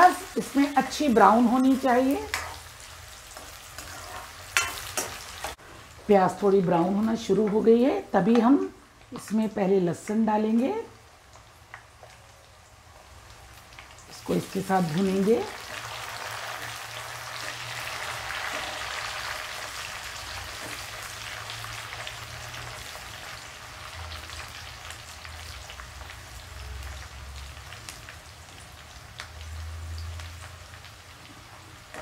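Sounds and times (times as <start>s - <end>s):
onions sizzling in hot oil: 0.0s - 32.0s.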